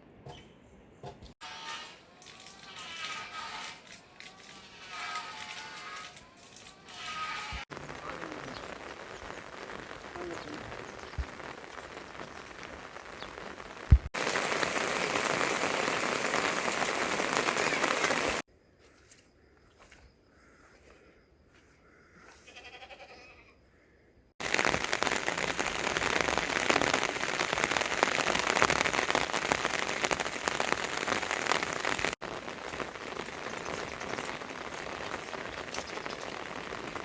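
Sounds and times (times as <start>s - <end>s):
heavy rain hiss: 7.7s - 18.4s, 24.4s - 37.0s
brief bleat: 22.4s - 23.6s.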